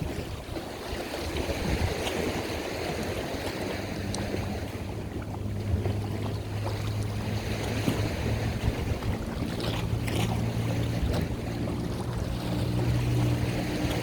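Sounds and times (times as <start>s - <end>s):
wind noise: 0.0s - 3.2s, 7.4s - 14.0s
boat engine droning: 0.0s - 14.0s
water rushing: 0.0s - 14.0s.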